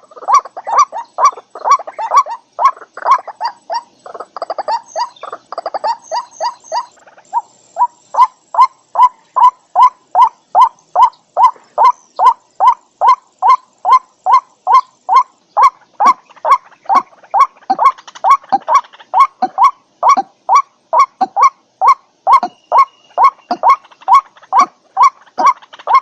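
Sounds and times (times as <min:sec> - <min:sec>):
waterhen croaking call: 0:00.0 - 0:26.0.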